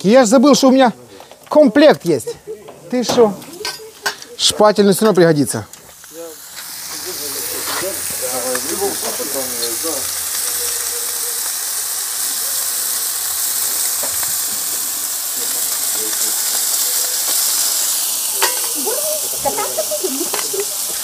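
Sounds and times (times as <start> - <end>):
food sizzling: 0.0 - 21.0.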